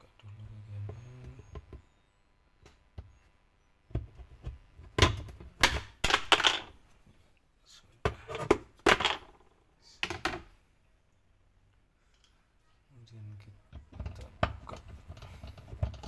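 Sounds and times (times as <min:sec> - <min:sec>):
knocks and clatters on machine casing: 0:13.8 - 0:16.0.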